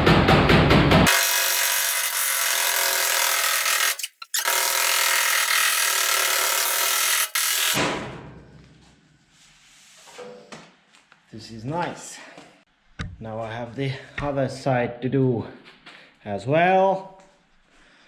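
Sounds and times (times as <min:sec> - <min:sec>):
electric drill drilling steel: 0:01.1 - 0:07.8.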